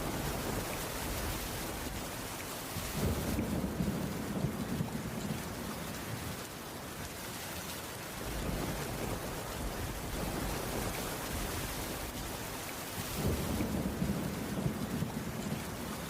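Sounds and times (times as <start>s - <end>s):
heavy rain falling: 0.0s - 16.0s
rolling thunder: 2.8s - 5.5s, 13.2s - 15.8s.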